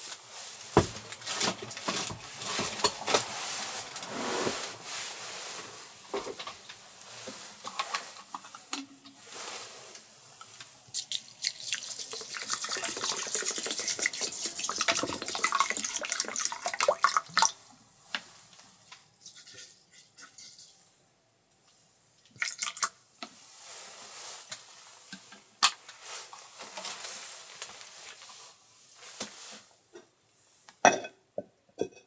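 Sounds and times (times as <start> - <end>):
water splashing into a sink: 11.0 - 17.6, 22.4 - 23.0.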